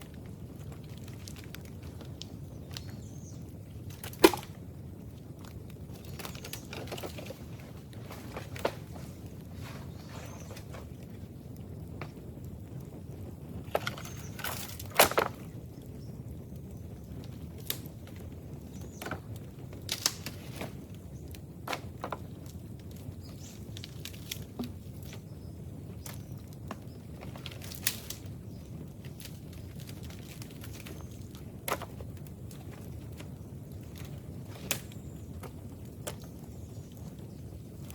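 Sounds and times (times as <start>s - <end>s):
dry bamboo cracking: 0.0s - 11.3s, 13.6s - 15.6s, 16.6s - 37.9s.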